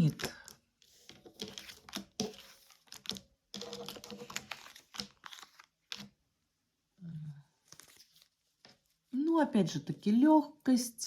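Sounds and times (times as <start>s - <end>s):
cards rustling: 0.2s - 6.2s, 7.6s - 8.4s.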